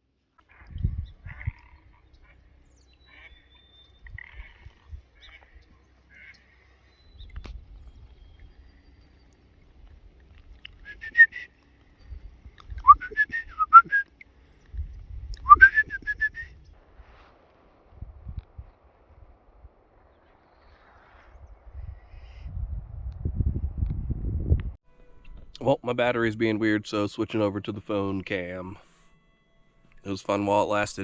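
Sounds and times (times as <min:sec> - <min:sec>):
low rumbles: 0:00.4 - 0:24.8
bird whistled chirps: 0:10.8 - 0:14.2, 0:15.4 - 0:16.7.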